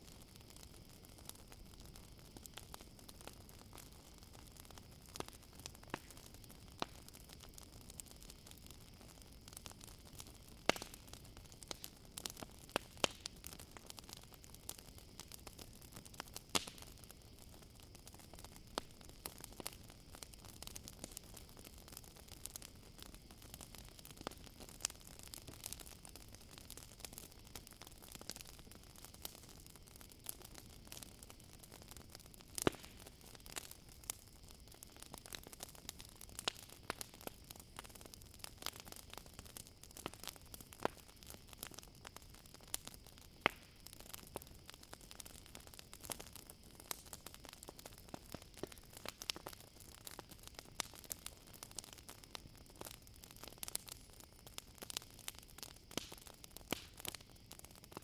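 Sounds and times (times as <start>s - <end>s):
campfire crackling: 0.0s - 58.0s
crickets chirring: 0.1s - 58.0s.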